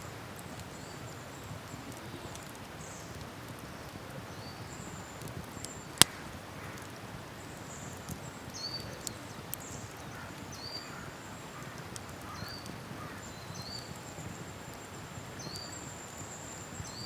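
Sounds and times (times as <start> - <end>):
campfire crackling: 0.0 - 17.0
low steady hush: 0.0 - 17.0
loud fire pop: 6.0 - 6.4.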